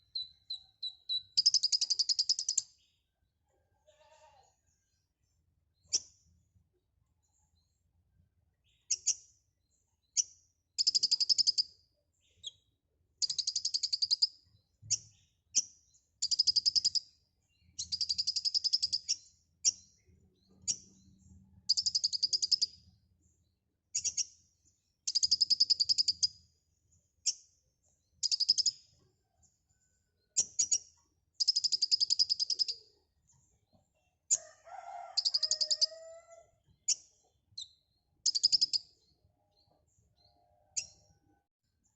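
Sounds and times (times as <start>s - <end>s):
bird sharp chirps: 0.0s - 2.8s, 10.1s - 19.9s, 25.1s - 26.4s, 28.2s - 28.9s, 30.4s - 33.0s, 35.1s - 41.2s.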